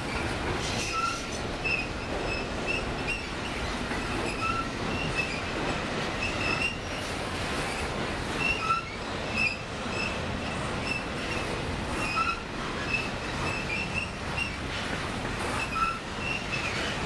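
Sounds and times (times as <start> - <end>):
train wheels rumbling on rails: 0.0 - 17.0
high-pitched wheel squeals: 4.3 - 5.4, 8.4 - 10.2, 12.0 - 14.6, 15.5 - 16.9.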